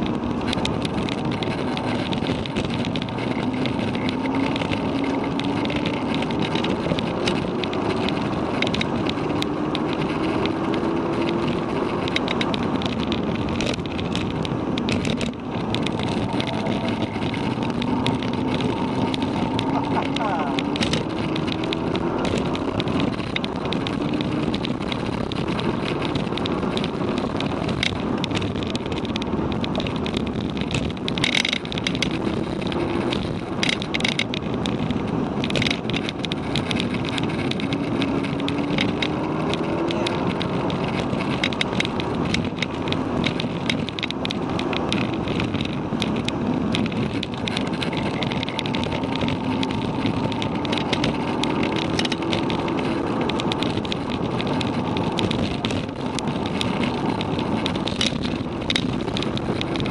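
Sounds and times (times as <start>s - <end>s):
road and wind noise: 0.0s - 59.9s
sharp clicks: 0.0s - 59.9s
car engine revving in cabin: 0.1s - 30.6s, 31.9s - 43.7s.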